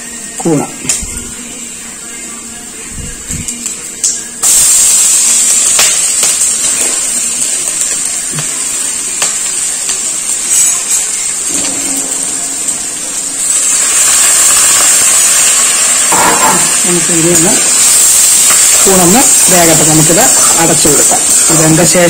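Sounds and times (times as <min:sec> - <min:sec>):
mushroom sizzling in hot oil: 0:03.3 - 0:22.0
utensils tapping on pan: 0:05.7 - 0:15.4, 0:16.1 - 0:22.0.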